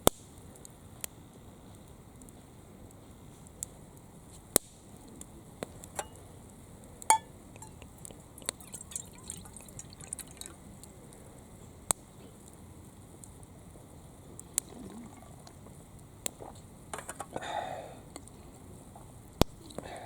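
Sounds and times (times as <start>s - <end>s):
short metallic ring: 7.1s - 7.3s
hard objects clinking: 7.1s - 7.8s
small light ticks: 18.1s - 18.4s.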